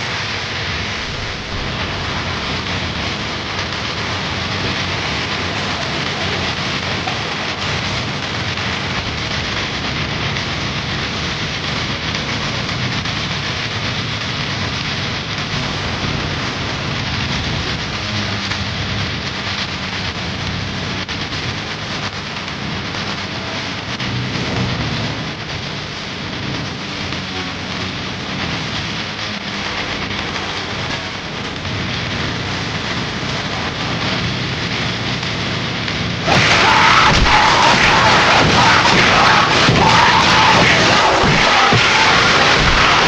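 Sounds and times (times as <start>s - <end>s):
low rumble: 0.0s - 13.4s, 29.6s - 43.0s
loud steady rushing noise: 0.0s - 43.0s.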